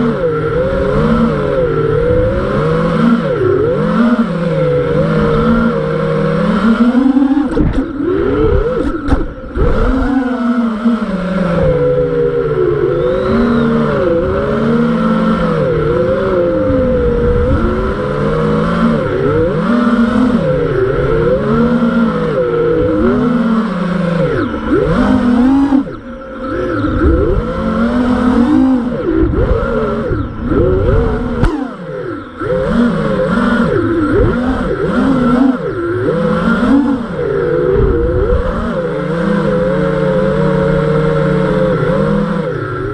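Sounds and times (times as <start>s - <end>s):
drone motors whining: 0.0s - 42.9s.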